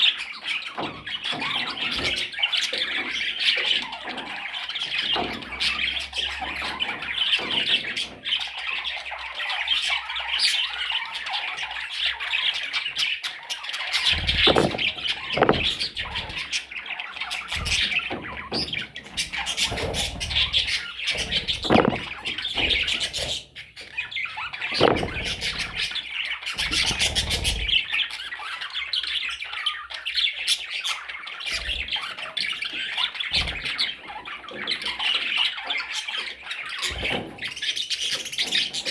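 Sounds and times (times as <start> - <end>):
parrots squawking: 0.1 - 29.8
dull thumps: 14.2 - 16.4, 17.6 - 23.2, 24.7 - 25.8.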